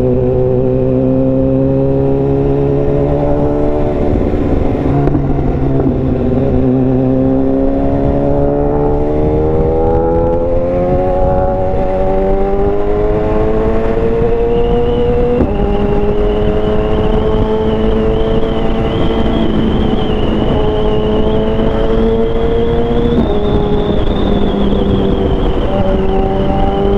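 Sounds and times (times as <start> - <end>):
motorcycle engine accelerating: 0.0 - 26.9
wind rushing over helmet: 0.0 - 26.9
thin high whistle: 14.5 - 26.9.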